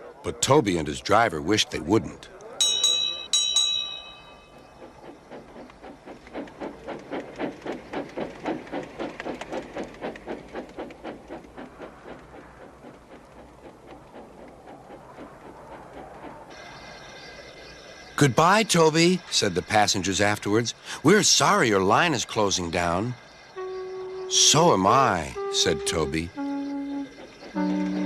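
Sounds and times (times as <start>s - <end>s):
steam locomotive chuffing: 2.7s - 28.0s.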